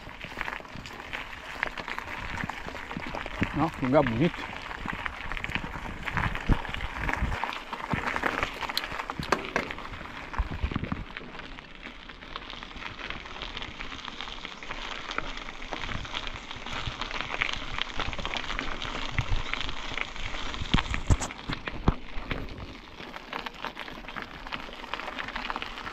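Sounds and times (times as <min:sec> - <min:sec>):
bike tyres crackling over grit: 0:00.0 - 0:25.9
bike clicks and knocks: 0:07.8 - 0:11.4.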